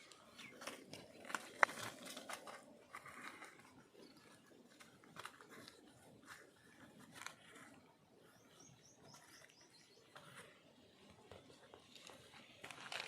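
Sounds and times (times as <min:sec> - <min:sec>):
bird chirping: 0:00.0 - 0:01.2, 0:08.2 - 0:10.6
faint clicks and rustles: 0:00.0 - 0:13.0.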